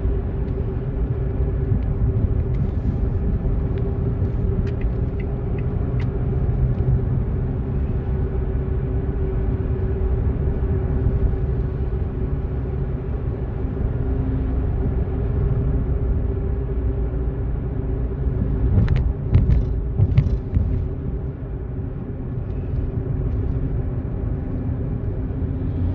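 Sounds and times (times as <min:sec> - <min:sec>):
car engine and tyres rumbling: 0:00.0 - 0:25.9.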